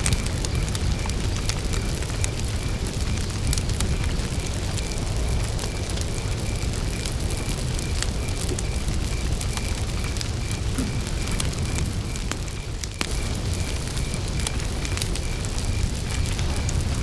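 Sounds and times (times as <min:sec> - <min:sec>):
campfire wood crackling: 0:00.0 - 0:17.0
low rumble of flames: 0:00.0 - 0:17.0.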